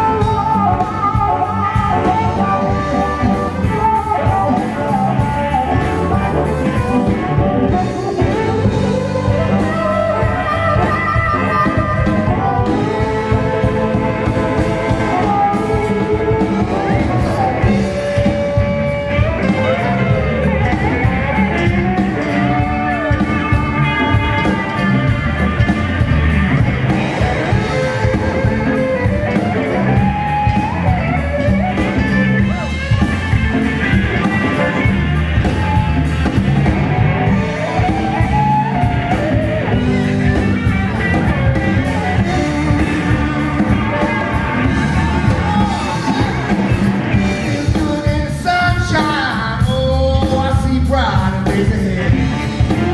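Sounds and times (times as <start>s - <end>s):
person singing: 0.0s - 25.0s, 41.7s - 52.9s
bass: 0.0s - 52.9s
drums: 0.0s - 52.9s
electric guitar: 0.0s - 52.9s.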